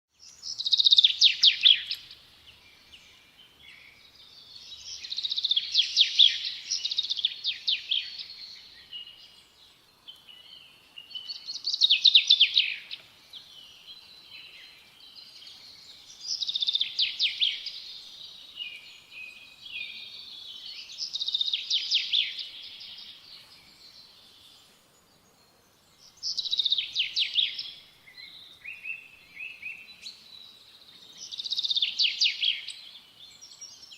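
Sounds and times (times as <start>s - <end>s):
songbird trilling: 0.3s - 2.2s, 10.4s - 14.5s, 16.1s - 17.9s, 26.1s - 30.2s.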